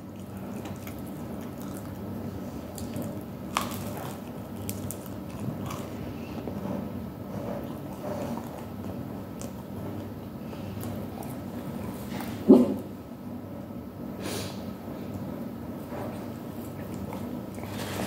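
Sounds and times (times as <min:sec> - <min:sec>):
person chewing crispy food: 0:00.1 - 0:06.5.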